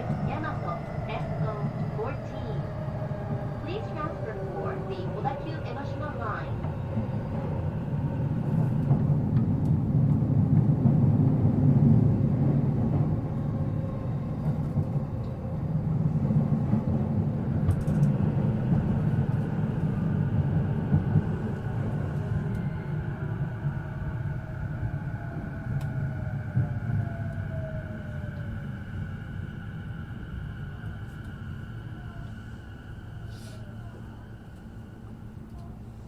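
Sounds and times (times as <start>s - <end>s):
faint steady tones: 0.0s - 8.2s
train wheels rumbling: 0.0s - 36.0s.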